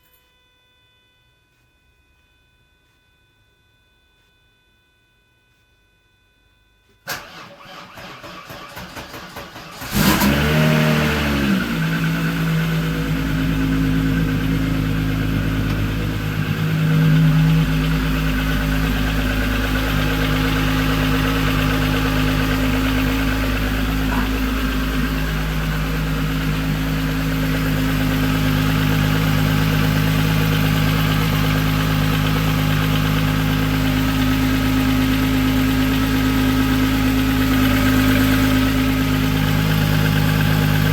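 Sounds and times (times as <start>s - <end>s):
engine starter cranking: 7.0s - 13.3s
car engine idling: 7.1s - 40.9s
engine ticking noise: 8.7s - 40.9s.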